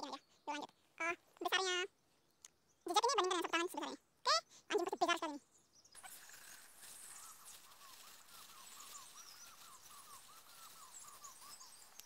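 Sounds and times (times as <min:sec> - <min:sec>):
faint high bird chirps: 0:00.0 - 0:12.0
light hiss: 0:06.0 - 0:12.0.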